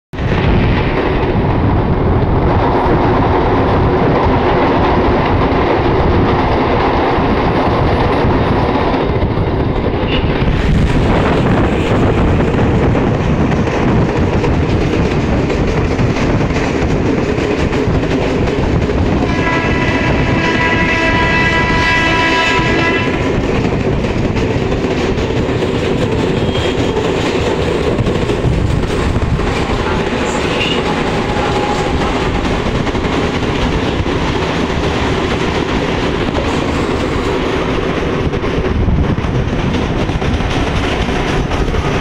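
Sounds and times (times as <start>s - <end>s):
train wheels rushing on rail: 0.1s - 42.0s
wind noise: 0.1s - 42.0s
wheels clickety-clack: 2.2s - 42.0s
train horn: 19.2s - 23.4s, 29.8s - 32.4s.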